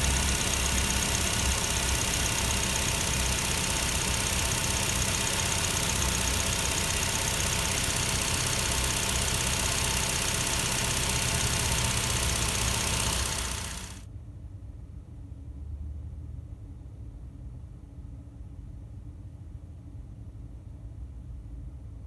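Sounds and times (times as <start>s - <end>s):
fan motor whirring: 0.0s - 14.0s.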